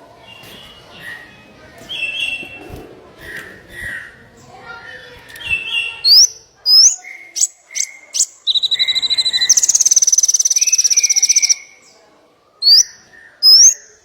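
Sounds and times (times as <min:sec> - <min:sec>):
bird whistles and chips: 0:05.3 - 0:11.8, 0:12.6 - 0:13.9
bird high trill: 0:05.8 - 0:11.8, 0:12.6 - 0:14.0.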